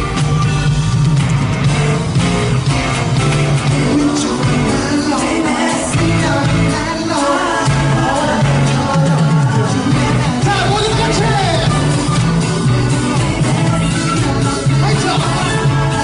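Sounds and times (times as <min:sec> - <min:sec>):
heavy bass beat: 0:00.0 - 0:05.0, 0:07.7 - 0:16.0
singer over a band: 0:03.6 - 0:16.0.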